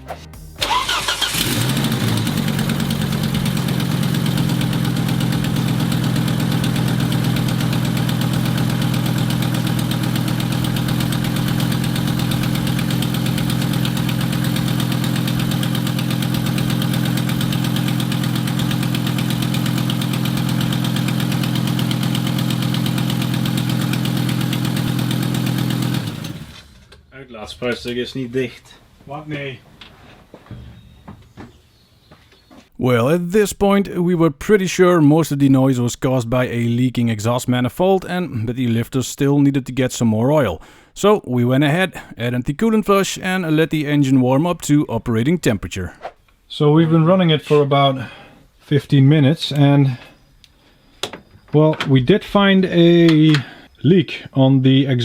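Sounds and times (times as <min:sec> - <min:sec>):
car engine starting and idling: 0:00.4 - 0:26.9.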